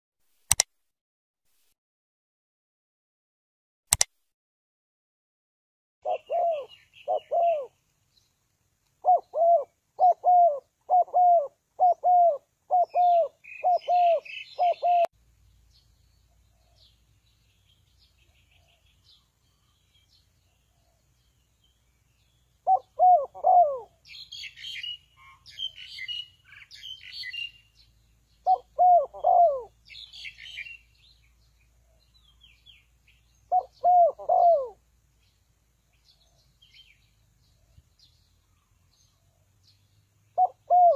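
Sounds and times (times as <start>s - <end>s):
dove cooing: 6.0s - 7.8s, 9.0s - 15.1s, 22.6s - 26.2s, 28.4s - 30.8s, 33.5s - 34.8s, 40.4s - 40.9s
small birds chirping: 6.0s - 40.9s.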